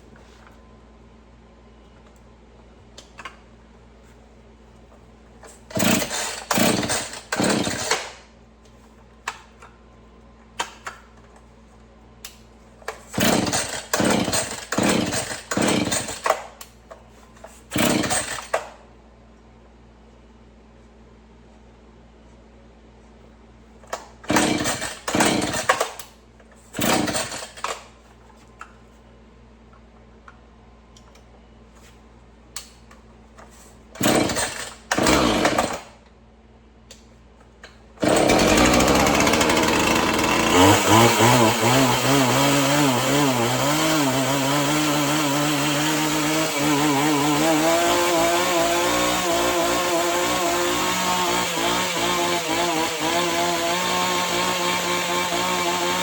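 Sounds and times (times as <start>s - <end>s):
chainsaw idling: 5.7s - 8.0s, 13.2s - 16.2s, 17.7s - 18.5s, 24.3s - 25.8s, 26.8s - 27.5s, 34.0s - 35.8s, 38.0s - 56.0s
starter cord pulls: 38.0s - 43.4s.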